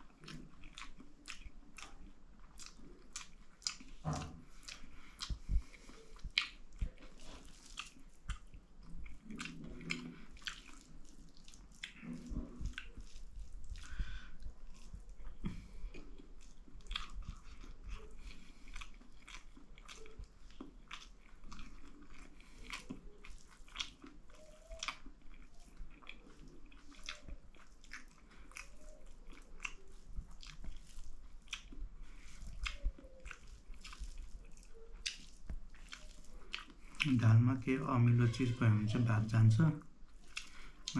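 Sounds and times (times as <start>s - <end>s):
person chewing food: 0.0s - 40.9s
wet mouth clicks: 2.6s - 14.1s, 30.4s - 37.2s, 40.2s - 40.9s.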